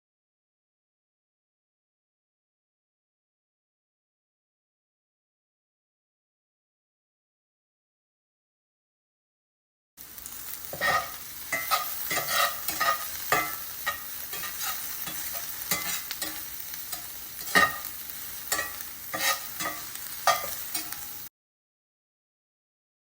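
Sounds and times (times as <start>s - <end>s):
vegetables sizzling in frying pan: 10.0s - 21.3s
utensil scraping pan: 10.5s - 21.3s.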